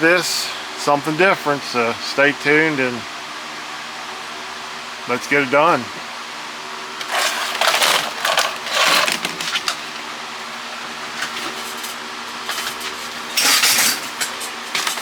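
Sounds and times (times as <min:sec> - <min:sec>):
faint steady hum: 0:00.0 - 0:15.0
crinkly plastic rustling: 0:07.0 - 0:15.0.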